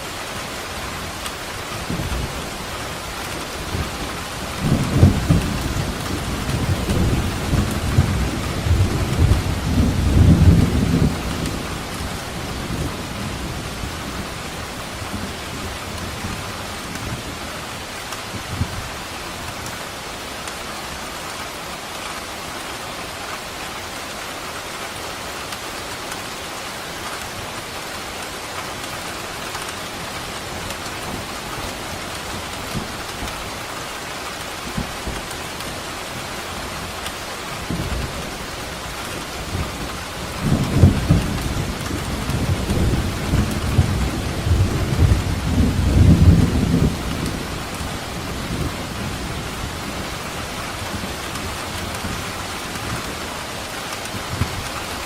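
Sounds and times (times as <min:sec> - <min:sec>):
heavy rain hissing: 0:00.0 - 0:55.0
thunder rumbling: 0:01.8 - 0:17.4, 0:37.6 - 0:55.0.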